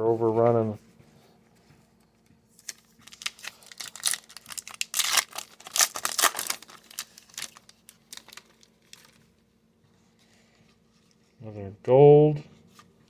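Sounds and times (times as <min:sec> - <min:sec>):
card pack wrapper tearing and crinkling: 0:02.6 - 0:09.2.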